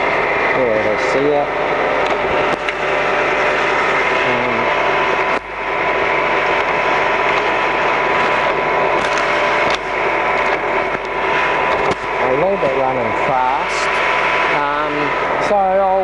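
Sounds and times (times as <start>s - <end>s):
lathe whirring: 0.0s - 16.0s.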